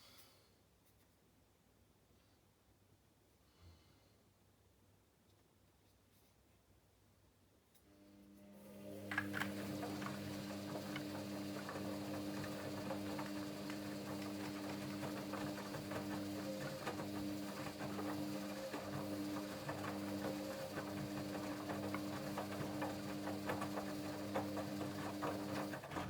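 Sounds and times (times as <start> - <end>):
washing machine hum: 8.4 - 26.0.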